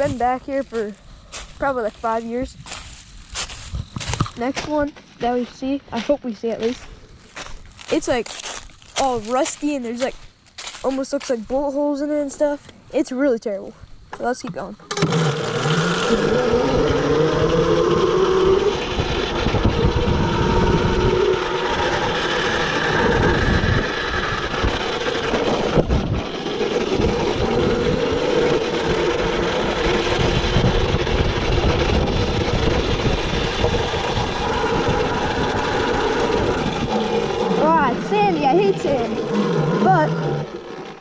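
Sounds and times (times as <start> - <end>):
wind and tyre noise: 0.0 - 12.9, 13.8 - 41.0
electric motor whining: 14.8 - 41.0.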